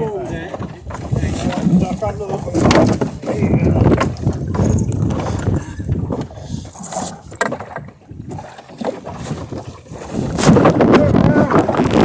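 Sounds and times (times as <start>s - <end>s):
water against hull: 0.0s - 12.0s
wind on microphone: 0.0s - 12.0s
boat gear knocking: 0.3s - 6.4s, 7.3s - 9.0s.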